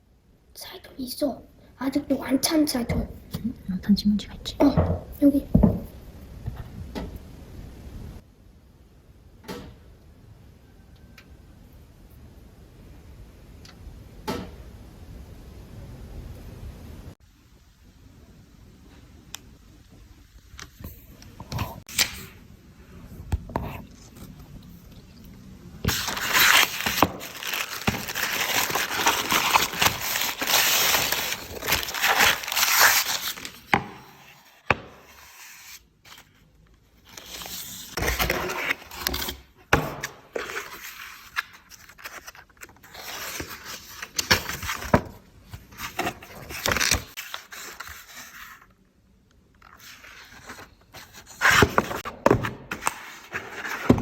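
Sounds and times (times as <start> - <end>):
scraping and tearing handling noises: 25.8 - 34.6, 35.2 - 48.7.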